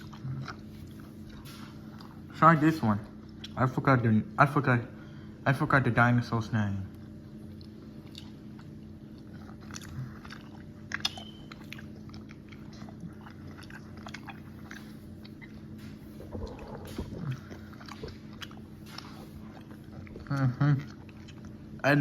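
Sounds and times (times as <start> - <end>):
person chewing gummy candy: 0.0 - 2.4, 7.0 - 22.0
steady low hum: 0.0 - 22.0.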